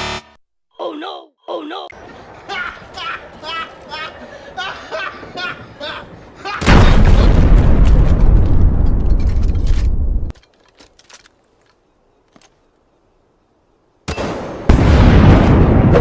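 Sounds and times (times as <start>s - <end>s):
booming explosion blasts: 6.6s - 10.3s, 14.2s - 16.0s.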